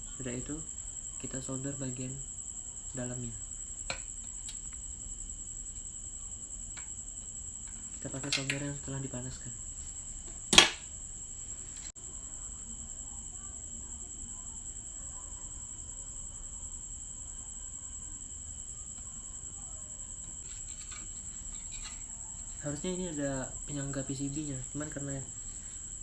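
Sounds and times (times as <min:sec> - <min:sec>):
high-pitched insect trill: 0:00.0 - 0:26.0
sharp knock: 0:10.5 - 0:10.8.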